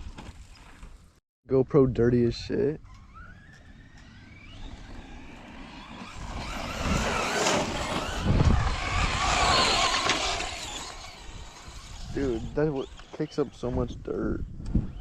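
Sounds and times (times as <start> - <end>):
rc car motor whining: 2.8 - 15.0
tyres throwing up dirt: 4.0 - 13.3.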